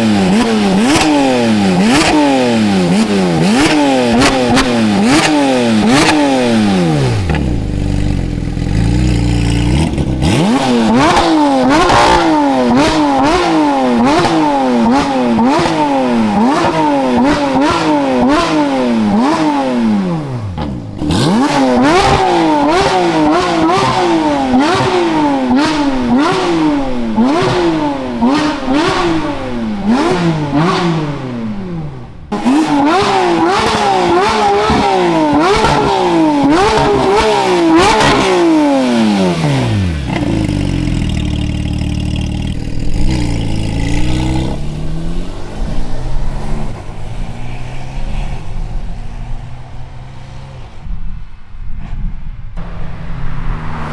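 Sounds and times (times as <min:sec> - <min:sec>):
car engine revving: 0:00.0 - 0:51.0, 0:52.6 - 0:53.9
exhaust pops and crackles: 0:32.3 - 0:44.6.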